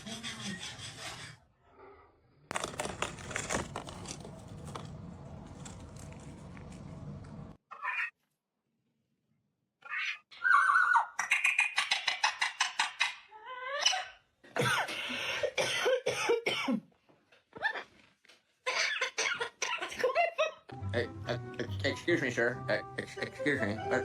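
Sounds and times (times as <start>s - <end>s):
parrot harsh cough-like calls: 18.6s - 19.9s.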